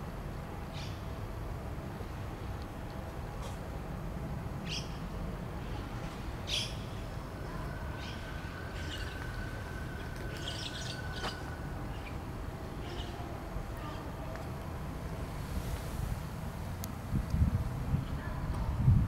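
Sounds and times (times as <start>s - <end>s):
low outdoor rumble: 0.0s - 19.0s
small birds chirping: 10.0s - 12.2s, 12.8s - 14.1s.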